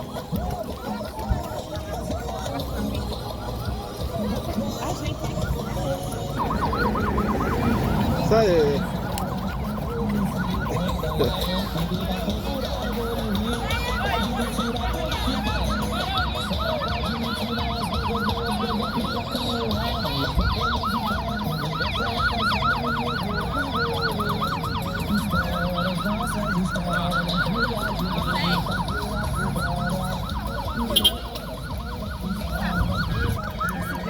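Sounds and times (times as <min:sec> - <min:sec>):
electronic siren yelping: 0:00.0 - 0:34.0.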